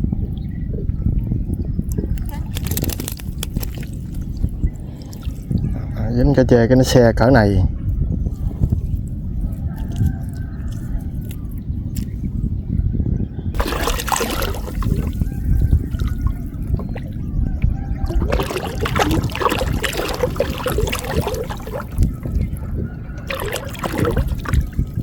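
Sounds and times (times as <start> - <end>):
water trickling and splashing: 1.1 - 5.9, 8.4 - 12.1, 13.6 - 25.0.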